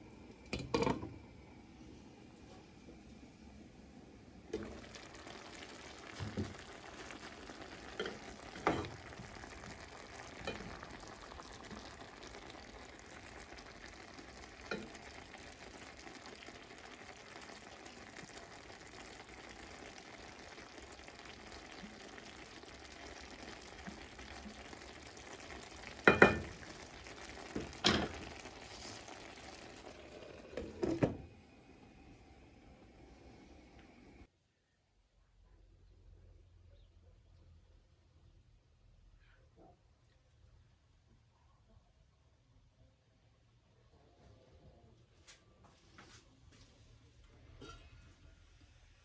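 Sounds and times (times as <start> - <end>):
food sizzling in a pan: 0.0 - 34.3, 47.4 - 49.0.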